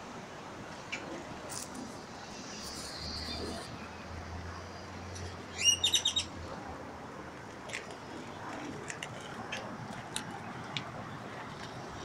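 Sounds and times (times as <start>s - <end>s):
outdoor background hum: 0.0s - 12.0s
bird chirping: 5.5s - 6.3s.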